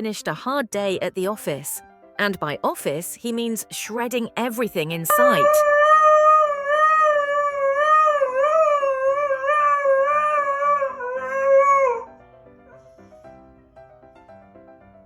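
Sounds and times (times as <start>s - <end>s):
dog howling: 5.2s - 12.1s.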